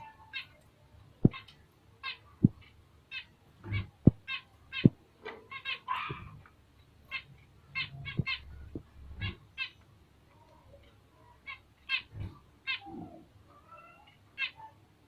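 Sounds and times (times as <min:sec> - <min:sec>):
finches chirping: 0:01.2 - 0:06.5, 0:07.1 - 0:09.9
soft low knocks: 0:03.7 - 0:05.0.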